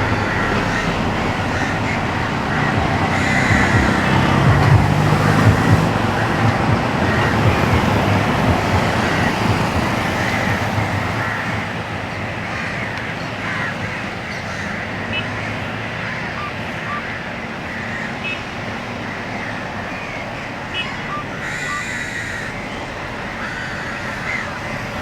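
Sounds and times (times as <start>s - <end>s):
road traffic noise: 0.0s - 25.0s
vehicle engine hum: 0.0s - 25.0s.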